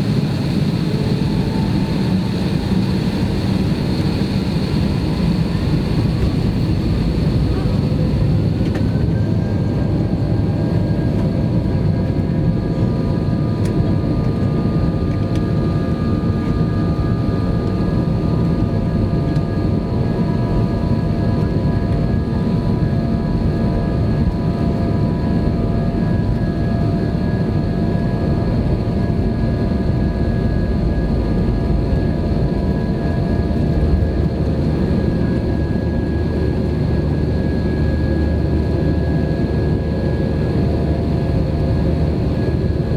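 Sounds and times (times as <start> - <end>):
jet engines rushing: 0.0 - 15.8.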